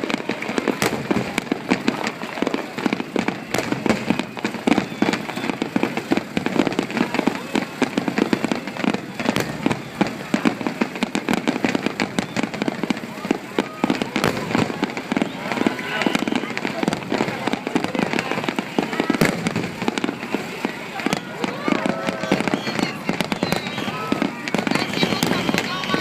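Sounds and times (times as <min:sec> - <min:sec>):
fireworks popping and banging: 0:00.0 - 0:26.0.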